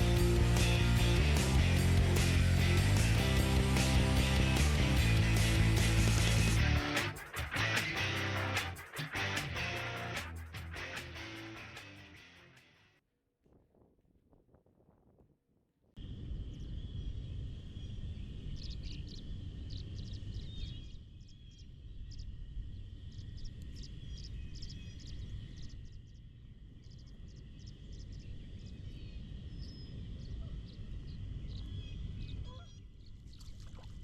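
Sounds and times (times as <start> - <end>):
steady high trill: 0.0 - 11.8
rapid high chirps: 0.0 - 12.3
wind rumbling on microphone: 16.0 - 34.0.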